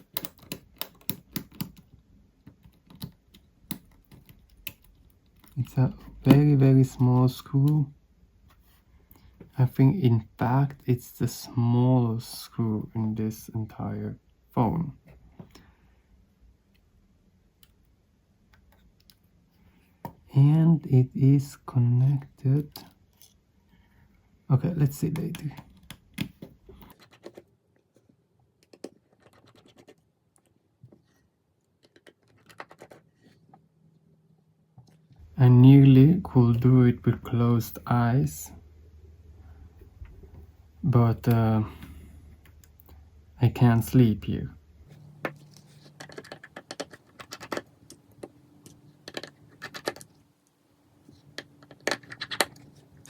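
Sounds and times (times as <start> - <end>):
tools scratching: 44.9 - 50.2.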